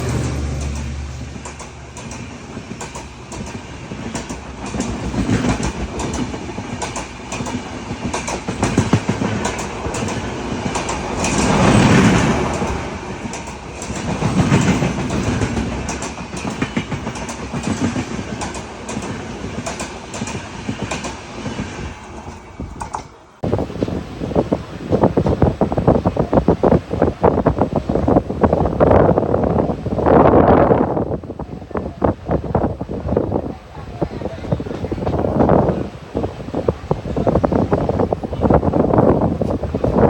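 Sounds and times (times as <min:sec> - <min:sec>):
train wheels clickety-clack: 0:00.0 - 0:24.0, 0:34.2 - 0:40.0.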